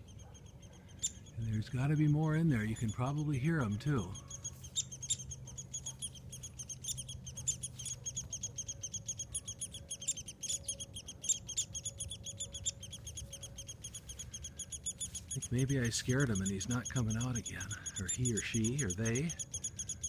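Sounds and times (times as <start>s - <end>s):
nestlings chirping rapidly: 0.0s - 20.0s.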